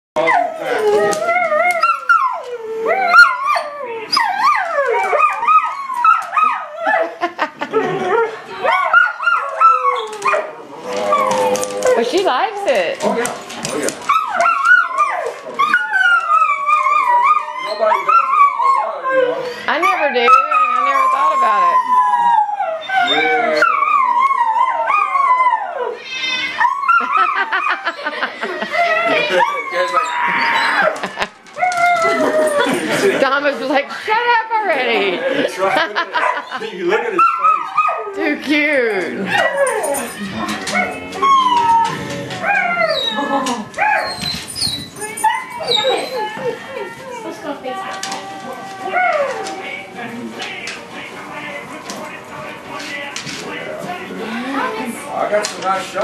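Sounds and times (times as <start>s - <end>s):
dog howling: 0.2s - 7.2s, 7.8s - 27.8s, 28.7s - 33.2s, 39.2s - 49.9s.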